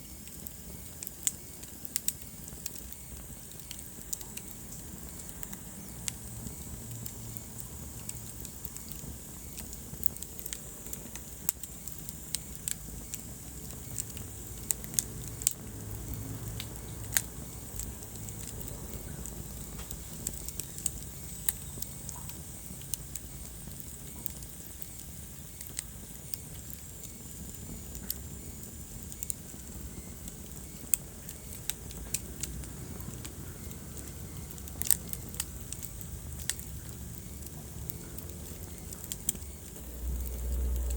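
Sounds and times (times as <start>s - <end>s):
low rumble of flames: 0.0s - 40.9s
wood fire crackling: 0.0s - 40.9s.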